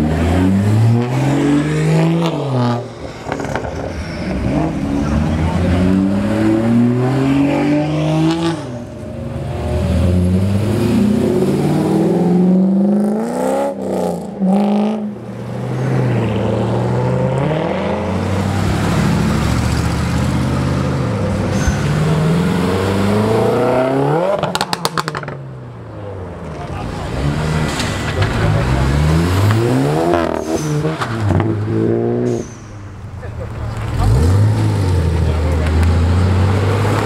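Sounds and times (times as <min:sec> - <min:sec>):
cars accelerating past: 0:00.0 - 0:32.6, 0:33.5 - 0:37.0.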